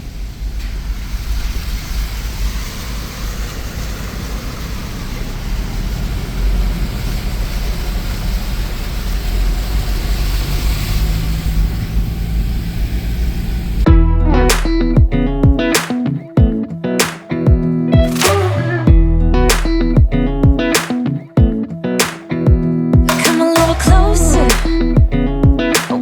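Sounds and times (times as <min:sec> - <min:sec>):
vehicle engine: 0:00.2 - 0:15.4, 0:18.1 - 0:20.4, 0:23.6 - 0:25.4
heavy low rumble: 0:11.4 - 0:15.7, 0:18.0 - 0:20.7, 0:23.7 - 0:25.7
steady rushing noise: 0:11.6 - 0:26.0.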